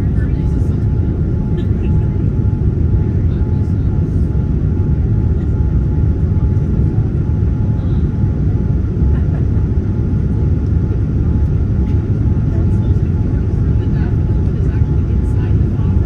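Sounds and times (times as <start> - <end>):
jet engine cabin noise: 0.0 - 16.0.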